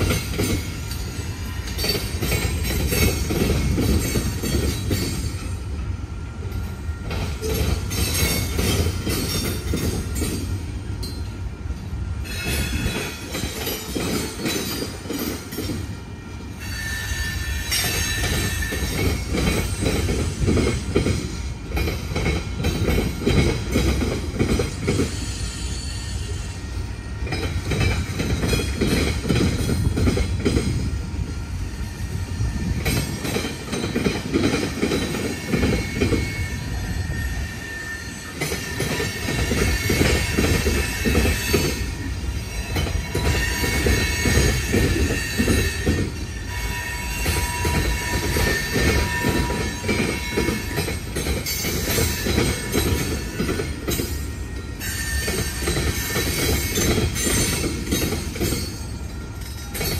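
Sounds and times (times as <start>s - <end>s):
wheels clickety-clack over rails: 0.0s - 5.8s, 6.4s - 11.3s, 12.3s - 16.0s, 17.0s - 25.3s, 27.2s - 31.0s, 32.0s - 59.9s
freight train rumbling: 0.0s - 59.9s
high wheel squeals: 16.6s - 19.2s, 35.0s - 59.9s.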